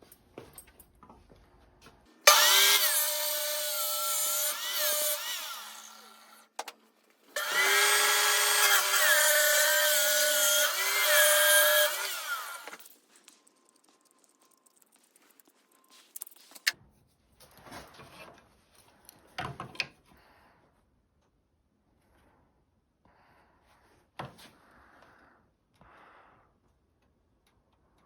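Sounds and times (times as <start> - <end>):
power saw cutting wood: 2.2 - 6.6, 7.4 - 13.0.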